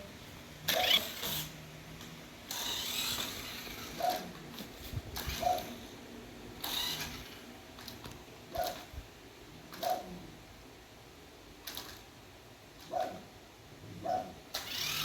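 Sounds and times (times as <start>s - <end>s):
toy truck motor whirring: 0.7s - 1.7s, 2.4s - 6.0s, 6.6s - 8.0s, 14.5s - 15.0s.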